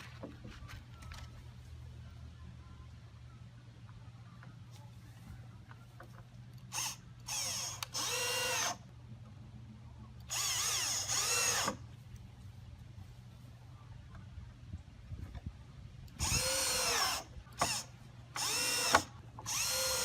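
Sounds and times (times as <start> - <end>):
power drill running: 6.7 - 8.8, 10.3 - 11.8, 16.2 - 17.8, 18.4 - 20.0.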